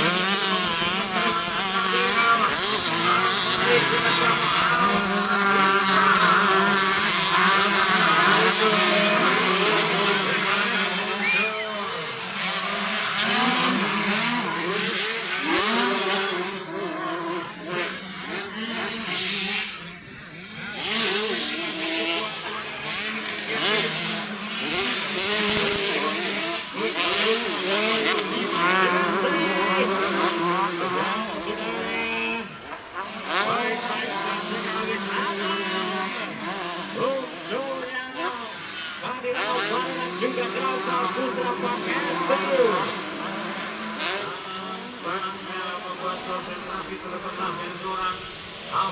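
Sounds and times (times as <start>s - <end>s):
motocross bikes revving: 0.0s - 48.9s.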